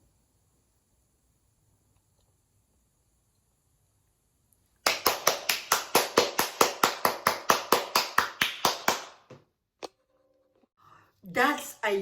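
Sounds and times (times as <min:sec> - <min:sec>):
person clapping hands: 0:04.8 - 0:09.5.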